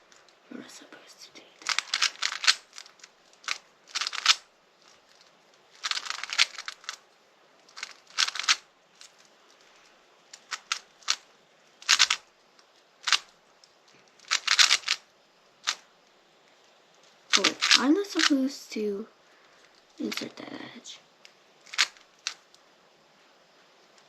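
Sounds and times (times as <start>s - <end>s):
plastic puzzle cube clicking: 1.6s - 7.0s, 7.7s - 9.3s, 10.3s - 12.2s, 13.0s - 13.3s, 14.2s - 15.0s, 15.6s - 15.8s, 17.3s - 18.4s, 21.6s - 22.5s.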